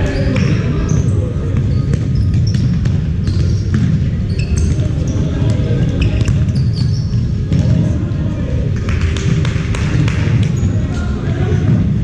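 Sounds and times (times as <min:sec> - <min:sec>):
shoes squeaking on court: 0:00.0 - 0:07.7, 0:10.4 - 0:10.9
low rumble in large hall: 0:00.0 - 0:12.0
basketball bouncing: 0:01.6 - 0:07.8.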